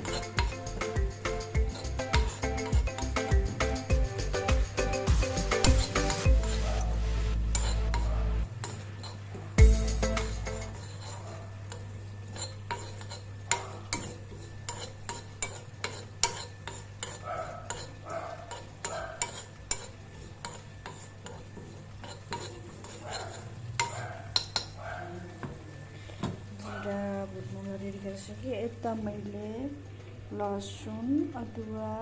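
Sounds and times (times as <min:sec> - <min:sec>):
seeds roasting in a pan: 0:00.0 - 0:32.0
spoon clinking against pan: 0:07.6 - 0:09.2, 0:10.2 - 0:21.4, 0:22.0 - 0:24.8.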